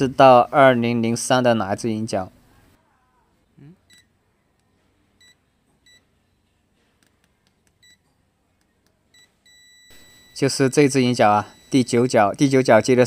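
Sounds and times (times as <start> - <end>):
multimeter beeping: 5.2 - 6.1, 7.8 - 8.0, 9.1 - 12.6.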